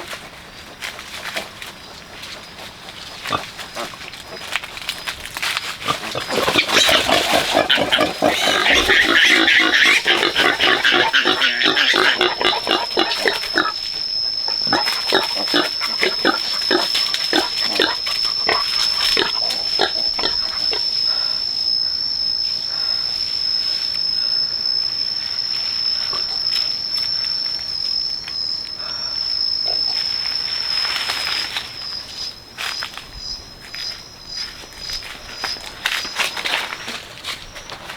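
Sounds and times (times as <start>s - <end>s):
high insect trill: 0.0s - 37.9s
pigs grunting and squealing: 1.7s - 4.9s, 5.7s - 21.2s.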